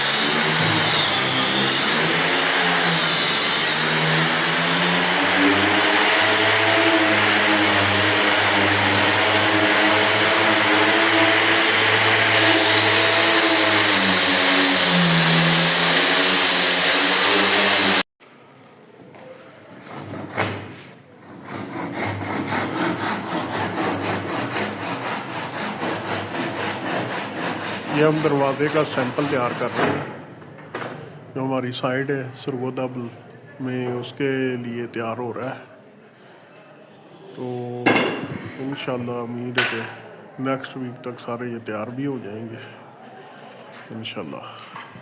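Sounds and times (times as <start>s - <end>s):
angle grinder sanding wood: 0.0s - 18.1s, 21.6s - 29.9s.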